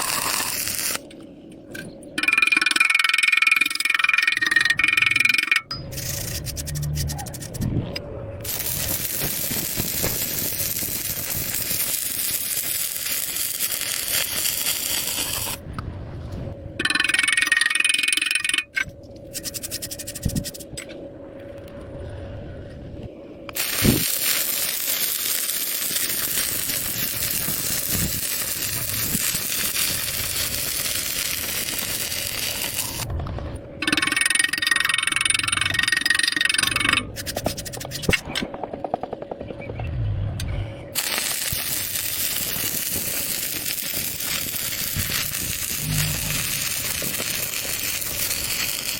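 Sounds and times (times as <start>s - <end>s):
arc welding crackling hiss: 0.0s - 1.0s, 8.4s - 15.6s, 23.5s - 33.1s, 41.0s - 48.9s.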